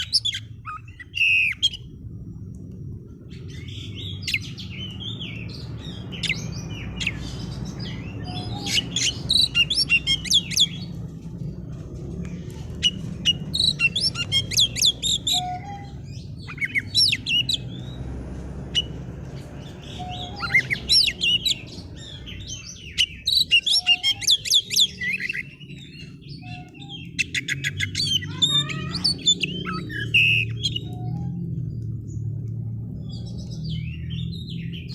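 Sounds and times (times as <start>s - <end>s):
steady low hum: 0.0s - 22.9s
songbird singing rapid high notes: 3.4s - 10.9s.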